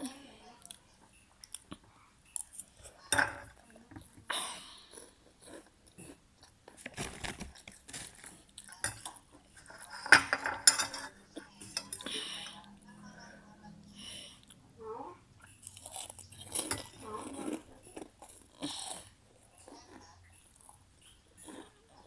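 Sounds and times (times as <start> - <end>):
utensils clinking against bowl: 3.1 - 3.6, 7.2 - 12.6
chewing and crunching snacks: 4.6 - 9.9, 15.4 - 22.0.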